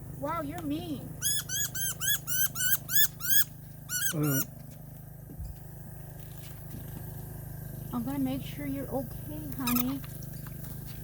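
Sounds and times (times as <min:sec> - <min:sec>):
bird squeaky distress calls: 0:01.2 - 0:04.6.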